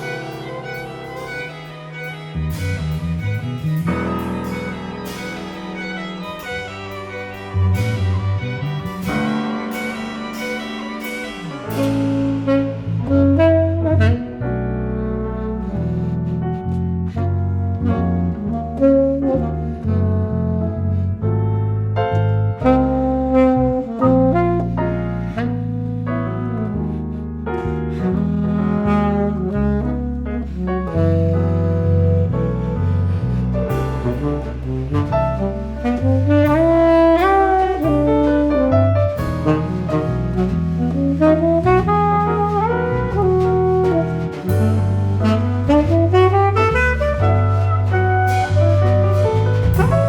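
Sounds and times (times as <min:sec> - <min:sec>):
string quartet: 0:00.0 - 0:13.8
drums: 0:00.0 - 0:14.2, 0:32.8 - 0:50.0
tenor saxophone: 0:00.0 - 0:21.2, 0:22.6 - 0:50.0
double bass: 0:00.0 - 0:50.0
piano: 0:00.0 - 0:50.0.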